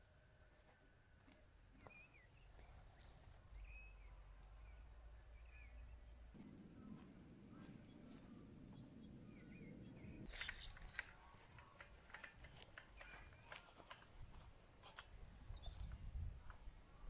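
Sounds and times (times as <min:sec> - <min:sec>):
bird chirps: 0:01.8 - 0:16.3
light clicks and rustles: 0:10.2 - 0:16.7.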